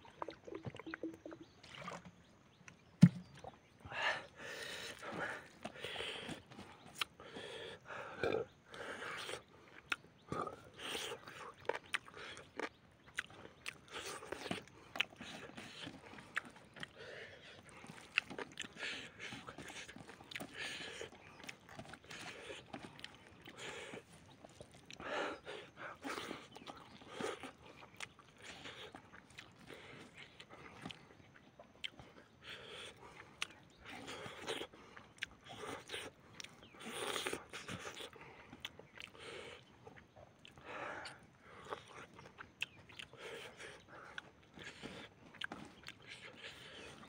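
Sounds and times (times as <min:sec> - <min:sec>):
wet chewing and mouth sounds: 0:00.0 - 0:03.7, 0:04.6 - 0:47.0.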